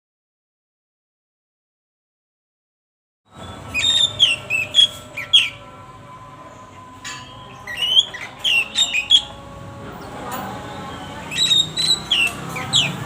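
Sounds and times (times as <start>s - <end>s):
lovebird chirps and whistles: 3.4s - 5.6s, 7.5s - 9.4s, 10.7s - 13.0s.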